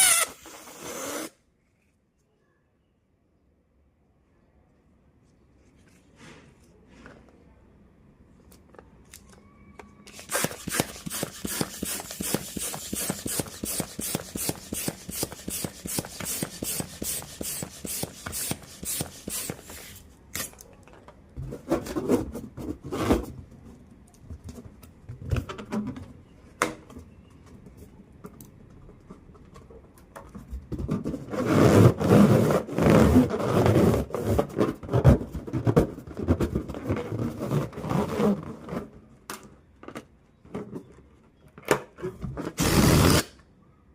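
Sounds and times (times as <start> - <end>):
air escaping from balloon: 0.0 - 1.4
rubbing and squeaking on balloon: 0.0 - 1.4, 10.0 - 20.0, 30.8 - 39.2.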